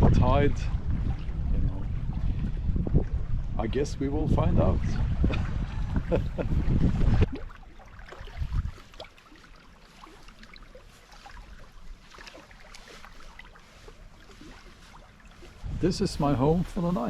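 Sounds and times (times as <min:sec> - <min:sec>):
small waves lapping: 0:00.0 - 0:03.5, 0:04.8 - 0:17.0
wind buffeting microphone: 0:00.0 - 0:09.0, 0:12.8 - 0:17.0
faint splashes: 0:06.8 - 0:17.0.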